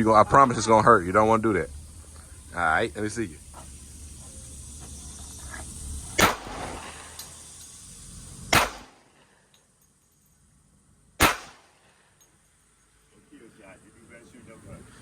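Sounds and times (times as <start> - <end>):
pistol shots: 6.2 - 7.0, 8.5 - 9.1, 11.2 - 11.8.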